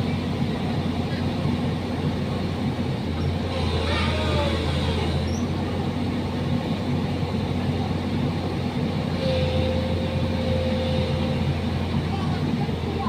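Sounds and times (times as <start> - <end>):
excavator engine running: 0.0 - 13.0.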